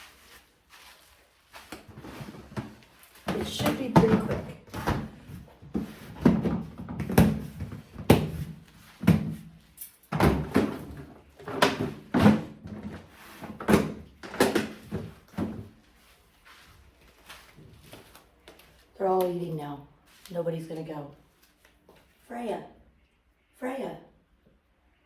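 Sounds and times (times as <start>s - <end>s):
plastic boxes knocking: 3.3s - 9.4s, 10.2s - 15.7s.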